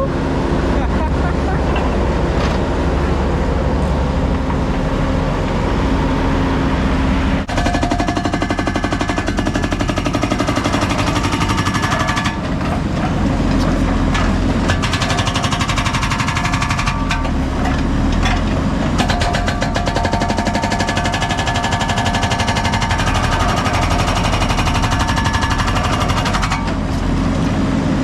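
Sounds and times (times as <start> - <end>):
diesel engine running: 0.0 - 28.0
hydraulic breaker hammering concrete: 7.5 - 26.9.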